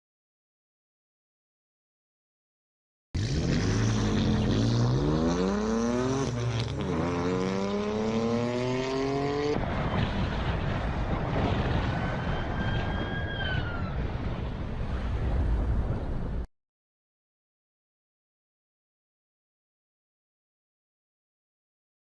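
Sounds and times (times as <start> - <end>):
car engine accelerating: 3.2 - 9.7
road and wind rumble: 3.2 - 16.5.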